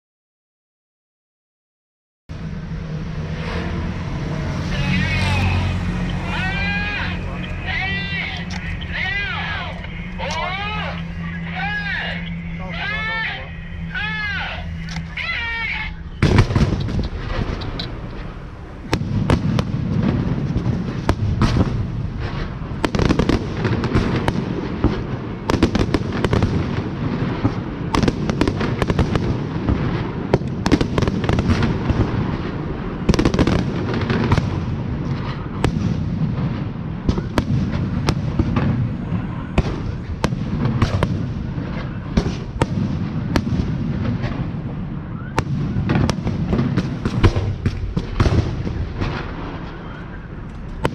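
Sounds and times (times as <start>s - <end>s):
low rumble: 2.3s - 25.5s
fireworks bangs and booms: 15.4s - 50.9s.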